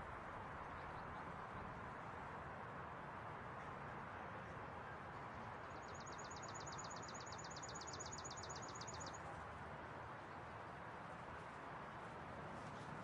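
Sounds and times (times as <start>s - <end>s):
city background hum: 0.0s - 13.0s.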